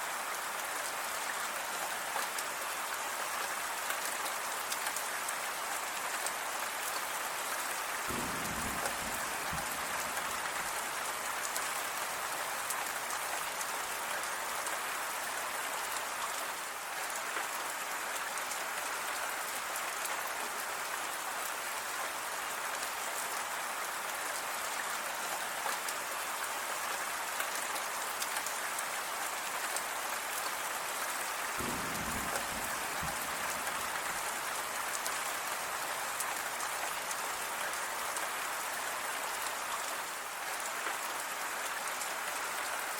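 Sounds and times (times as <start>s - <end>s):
rain pattering on surfaces: 0.0s - 42.9s.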